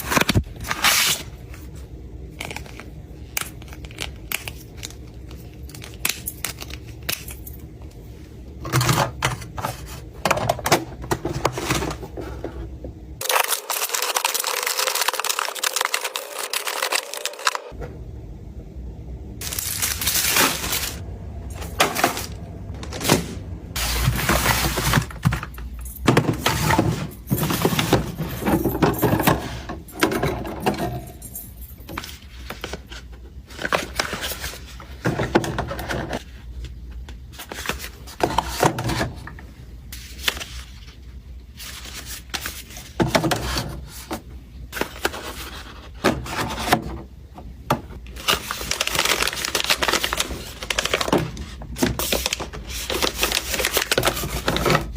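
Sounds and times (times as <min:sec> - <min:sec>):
rustling and scraping: 0:19.4 - 0:30.0
objects clacking and knocking: 0:21.5 - 0:32.7.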